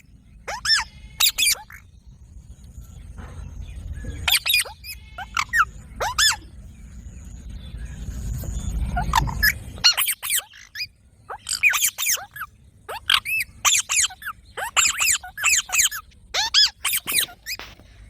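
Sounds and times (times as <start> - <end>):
parrots screeching: 0.0 - 1.9, 4.2 - 6.6, 8.9 - 17.8
low rumble: 0.0 - 10.0.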